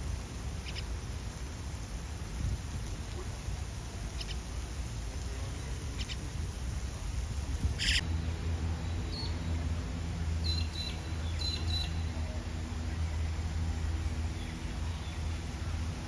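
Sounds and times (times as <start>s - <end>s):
steady low rumble: 0.0s - 16.0s
birds chirping: 7.8s - 8.0s, 10.4s - 16.0s.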